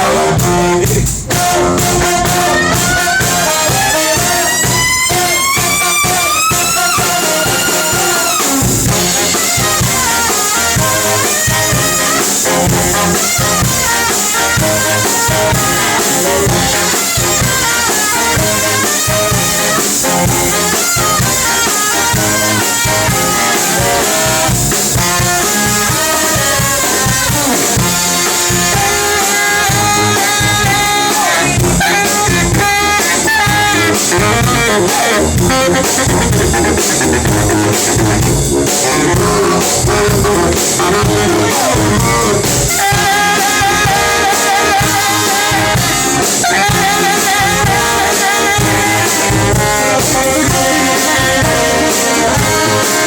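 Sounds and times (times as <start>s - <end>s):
brass band playing jazzy tune: 0.0s - 53.0s
drum kit beat: 0.0s - 53.0s.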